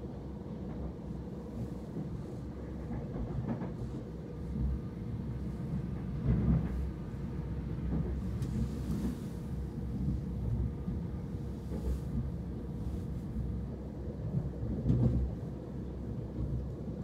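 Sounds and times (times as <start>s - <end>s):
light track knocks: 14.3s - 15.4s.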